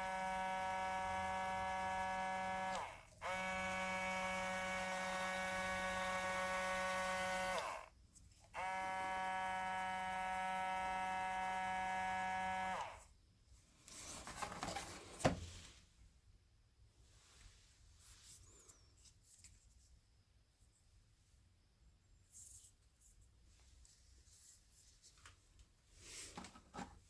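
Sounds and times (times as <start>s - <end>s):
motor winding down: 0.0s - 7.9s, 8.6s - 13.0s
small motor buzzing hum: 0.0s - 13.1s
handling rustles: 13.8s - 15.9s.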